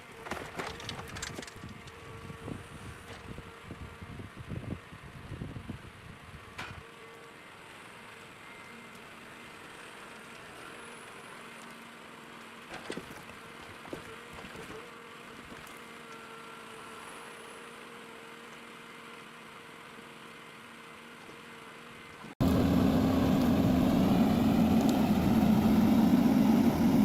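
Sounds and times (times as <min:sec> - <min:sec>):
diesel engine running: 0:22.4 - 0:27.0.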